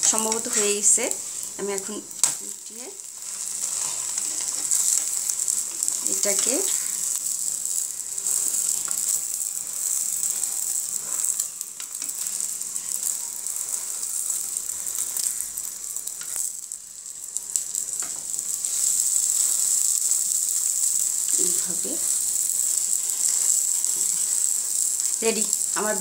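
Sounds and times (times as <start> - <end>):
omelette sizzling in oil: 0.0 - 26.0.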